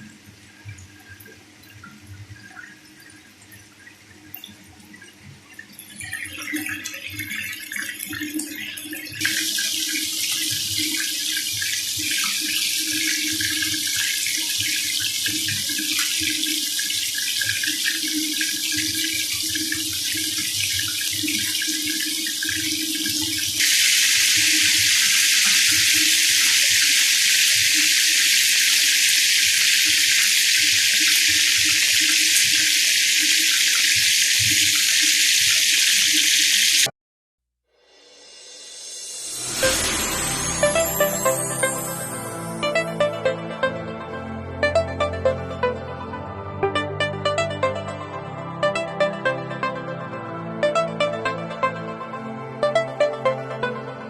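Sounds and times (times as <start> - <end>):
tap water running into sink: 0.6 - 36.9.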